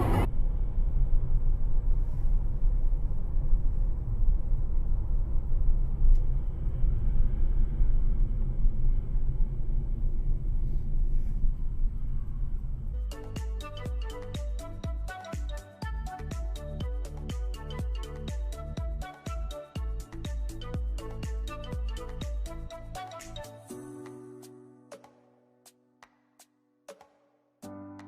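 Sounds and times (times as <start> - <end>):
vehicle engine and road rumble: 0.0 - 15.2
music with sharp beat: 13.0 - 27.2.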